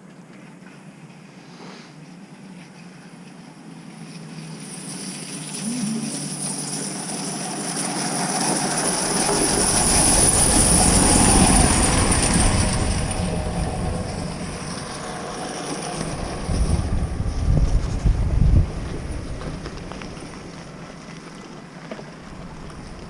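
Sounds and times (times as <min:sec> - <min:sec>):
train passing: 0:03.9 - 0:23.0.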